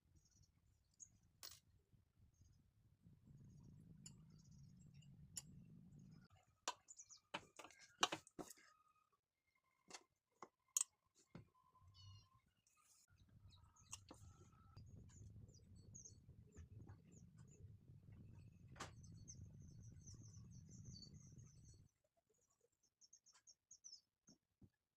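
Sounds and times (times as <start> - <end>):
faint clicks and taps: 6.7 - 8.7.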